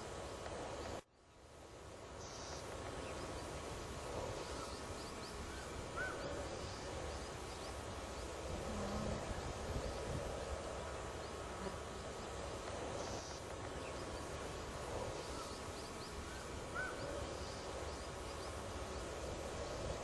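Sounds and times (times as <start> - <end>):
background hiss and rumble: 0.0 - 20.0.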